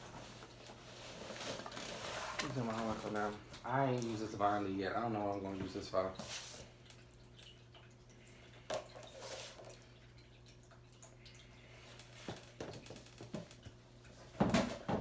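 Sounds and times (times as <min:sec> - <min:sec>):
low pump hum: 0:02.4 - 0:12.7
fountain water trickling and dripping: 0:03.8 - 0:09.1, 0:09.7 - 0:12.2.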